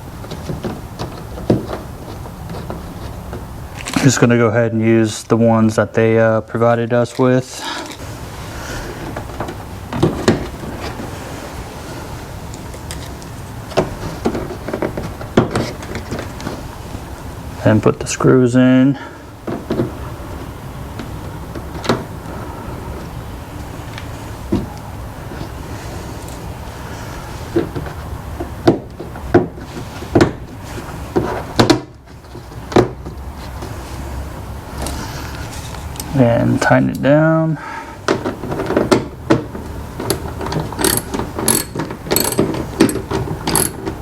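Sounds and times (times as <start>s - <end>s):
sharp knocks and clunks: 27.5s - 33.2s, 38.1s - 44.0s
small hardware clicks and knocks: 40.0s - 43.9s.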